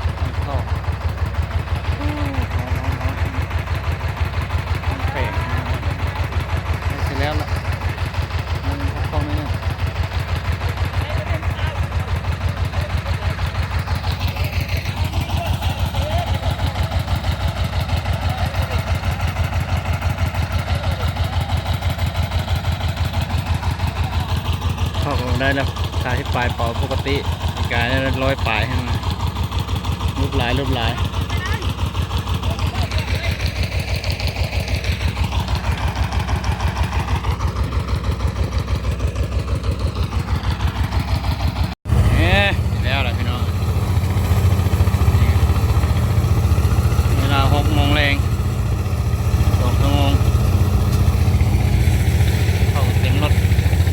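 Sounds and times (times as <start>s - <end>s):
threshing machine engine throbbing: 0.0s - 53.9s.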